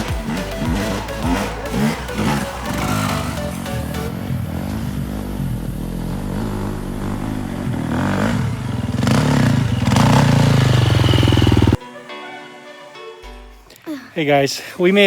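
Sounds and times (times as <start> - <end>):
vehicle engine revving: 0.0 - 11.8.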